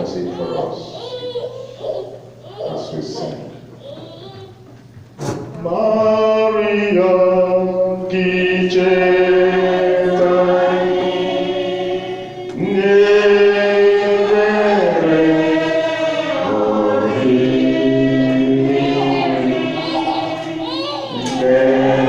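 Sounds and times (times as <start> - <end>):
voices singing a slow hymn: 5.6 - 22.0.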